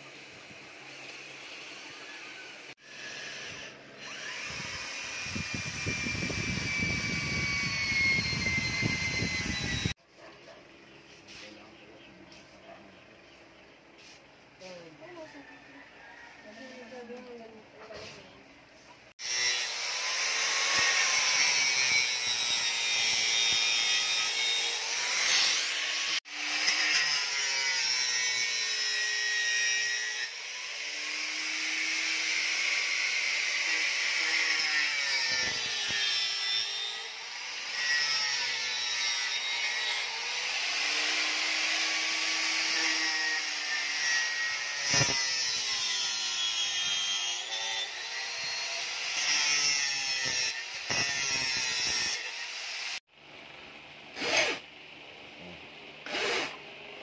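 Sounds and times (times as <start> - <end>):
angle grinder cutting: 0.0 - 10.0, 19.2 - 53.0, 54.1 - 54.6, 56.0 - 56.6.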